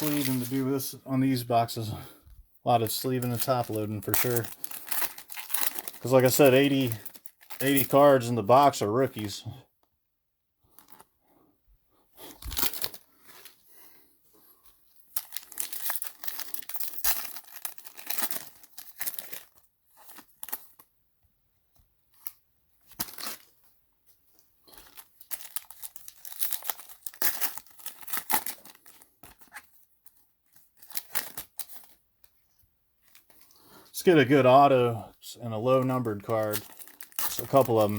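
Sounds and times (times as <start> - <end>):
card pack wrappers tearing: 0.0 - 0.7, 2.8 - 9.4, 12.3 - 13.1, 15.2 - 20.8, 22.8 - 23.6, 24.7 - 32.0, 35.6 - 37.9.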